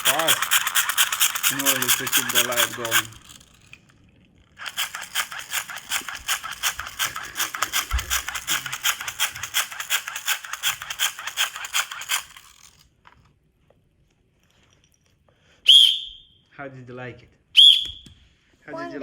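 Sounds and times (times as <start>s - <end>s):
dynamo flashlight gear rattling: 0.0s - 13.0s.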